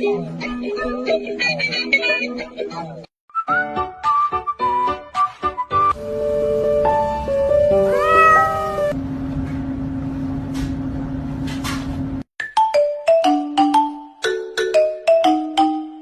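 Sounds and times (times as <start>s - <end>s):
background music: 2.2s - 9.0s
cat meowing: 7.7s - 9.0s.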